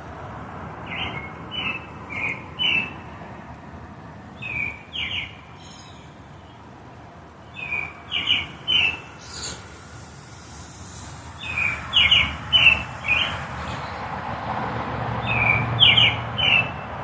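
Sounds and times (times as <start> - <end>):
songbird chirping: 4.4 - 14.0.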